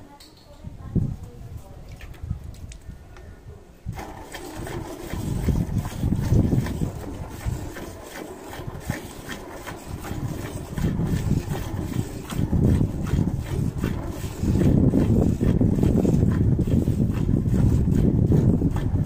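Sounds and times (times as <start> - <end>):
low uneven rumble: 0.0 - 19.0
milk squirting into steel pail: 3.9 - 19.0.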